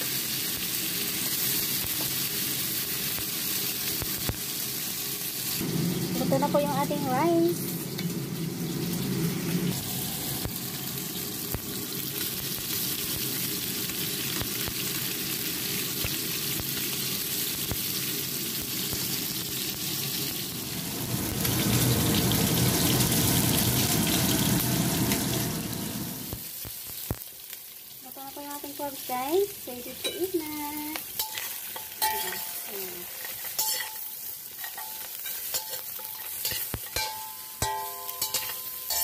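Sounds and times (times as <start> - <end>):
food sizzling in oil: 0.0 - 39.0.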